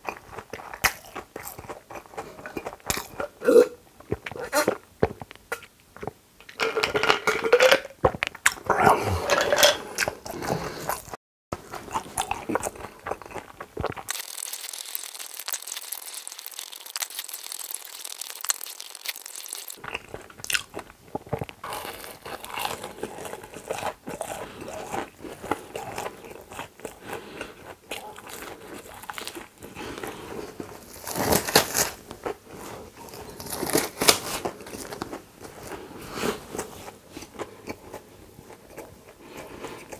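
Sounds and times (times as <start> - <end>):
chewing and crunching food: 0.0 - 39.9
person gulping a drink: 2.2 - 21.9.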